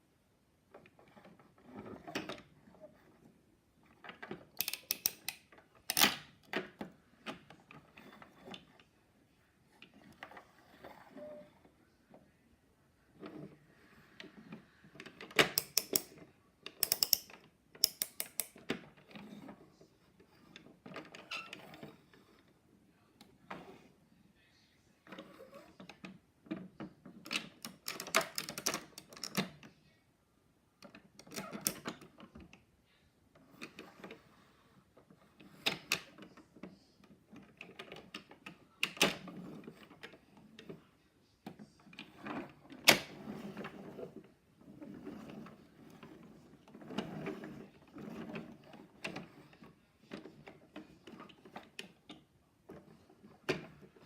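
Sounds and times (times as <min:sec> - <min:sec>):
plastic toys clicking and rattling: 0:04.0 - 0:08.7, 0:15.0 - 0:19.1, 0:27.2 - 0:29.6, 0:30.8 - 0:32.2.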